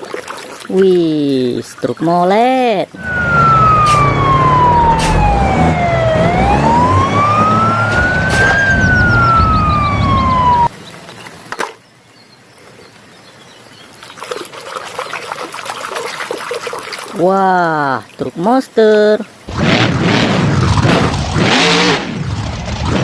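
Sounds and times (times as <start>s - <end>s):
electronic wailing siren: 3.0s - 10.7s
low rumble: 3.0s - 10.7s.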